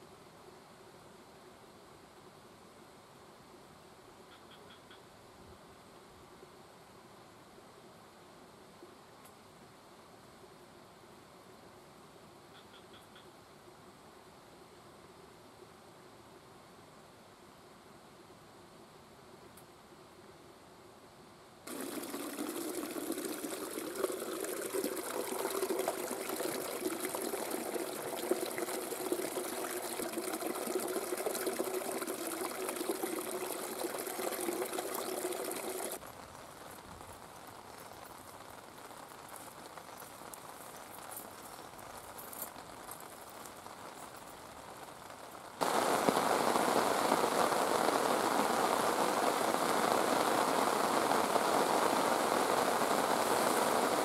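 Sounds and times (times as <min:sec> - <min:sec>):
heavy rain pattering: 0:21.7 - 0:54.0.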